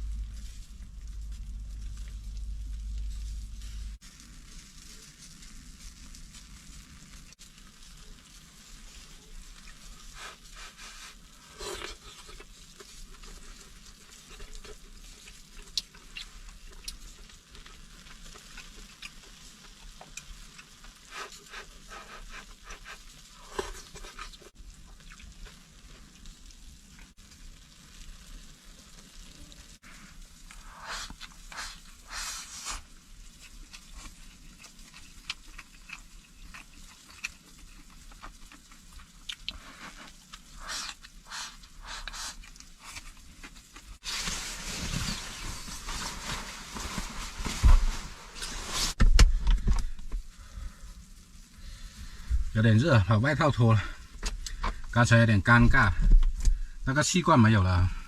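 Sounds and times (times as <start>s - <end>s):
food sizzling in a pan: 3.3s - 35.2s.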